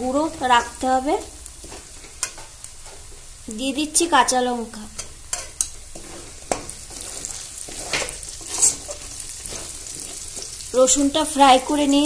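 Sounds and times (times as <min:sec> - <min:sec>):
chillies sizzling in hot oil: 0:00.0 - 0:12.0
metal spatula scraping wok: 0:01.6 - 0:03.2, 0:04.9 - 0:10.7.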